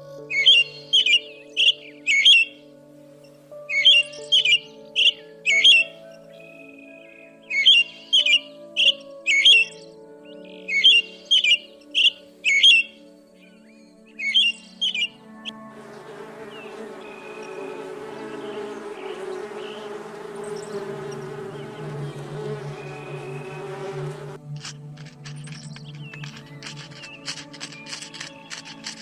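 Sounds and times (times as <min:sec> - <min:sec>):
background music: 0:00.0 - 0:29.0
insect-like buzz: 0:15.5 - 0:29.0.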